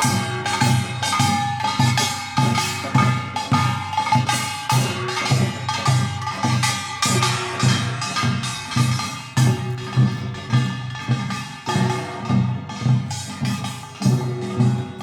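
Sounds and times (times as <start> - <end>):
traditional drum beats: 0.0 - 15.0.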